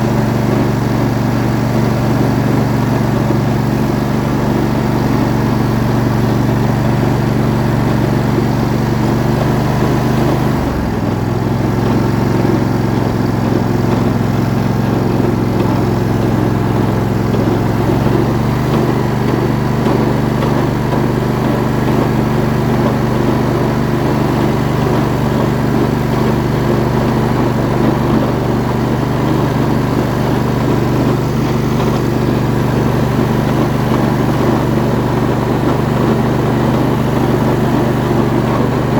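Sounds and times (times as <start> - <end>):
lawn tractor engine running: 0.0 - 38.9.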